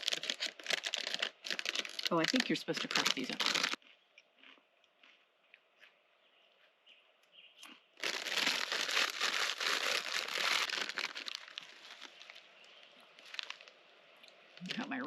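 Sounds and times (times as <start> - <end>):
chip bag crinkling: 0.0 - 4.6, 8.0 - 13.8
chips crunching: 0.0 - 6.0, 7.6 - 12.4.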